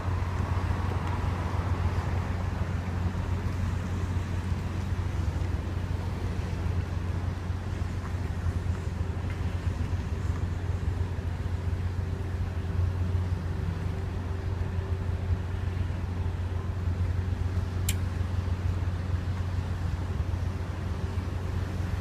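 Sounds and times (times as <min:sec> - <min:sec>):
constant hum: 0:00.0 - 0:22.0
ship engines droning: 0:00.0 - 0:22.0
sharp click: 0:17.8 - 0:18.0.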